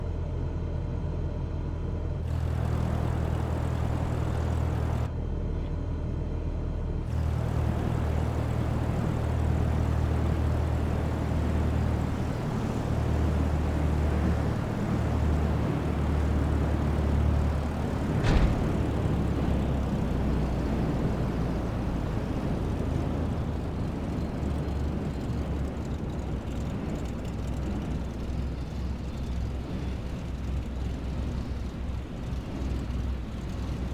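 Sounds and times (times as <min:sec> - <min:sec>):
airplane engine and propeller: 0:00.0 - 0:33.9
sharp thump: 0:17.6 - 0:19.8.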